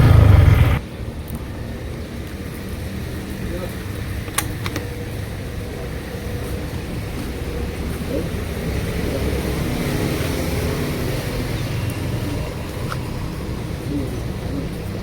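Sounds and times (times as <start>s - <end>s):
vehicle engine rumble: 0.0s - 0.9s.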